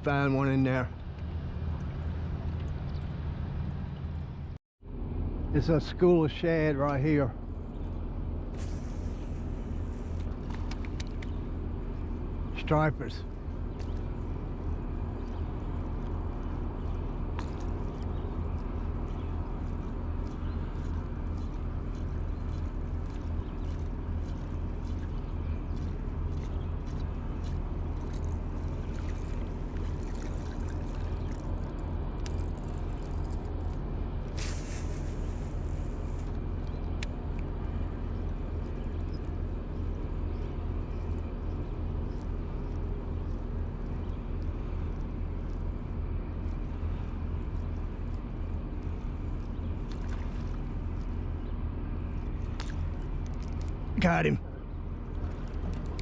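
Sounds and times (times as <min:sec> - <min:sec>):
outboard motor running: 0:05.7 - 0:56.0
rushing hiss: 0:34.4 - 0:36.0.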